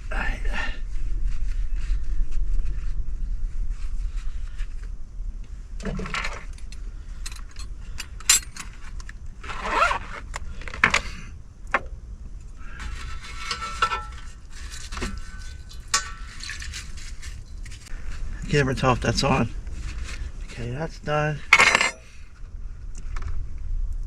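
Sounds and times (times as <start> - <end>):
rustling: 1.0 - 11.8, 12.4 - 22.4
steady low rumble: 10.3 - 24.0
cookware clinking and scraping: 12.9 - 17.8, 21.5 - 22.2.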